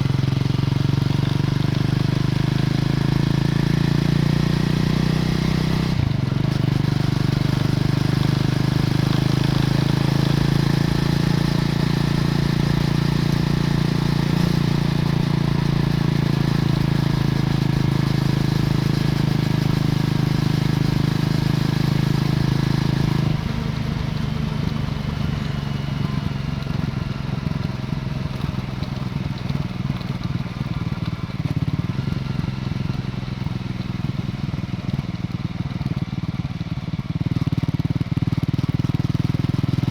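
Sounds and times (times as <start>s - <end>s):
motorcycle engine running: 0.0s - 39.9s
road noise: 5.2s - 34.3s.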